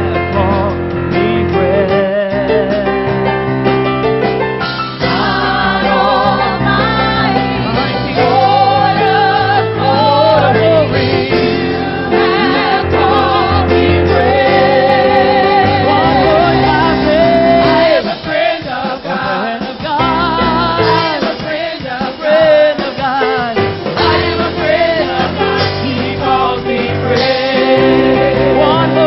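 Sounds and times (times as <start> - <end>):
keyboard and bass: 0.0 - 18.1, 20.0 - 21.2, 23.5 - 29.0
gospel choir singing: 4.8 - 29.0.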